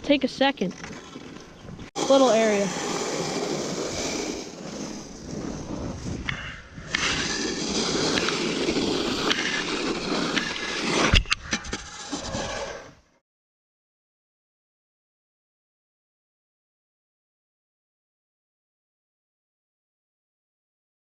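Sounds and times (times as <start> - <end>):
snow shovels scraping ice: 2.0 - 6.2, 6.9 - 12.9.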